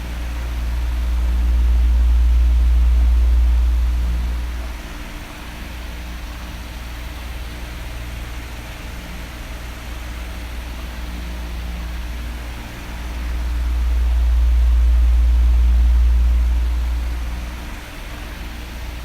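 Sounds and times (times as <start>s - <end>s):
deep rumble: 0.0s - 5.2s, 12.9s - 19.0s
electric fan running: 0.0s - 19.0s.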